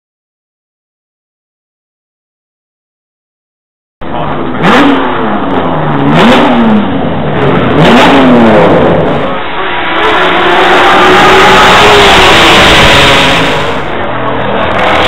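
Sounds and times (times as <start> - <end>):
racing car engines revving: 4.0 - 15.0.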